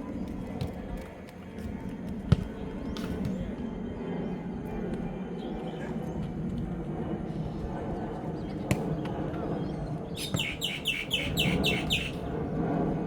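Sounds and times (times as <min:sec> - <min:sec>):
low outdoor background noise: 0:00.0 - 0:13.0
bird high chirps: 0:10.2 - 0:12.2.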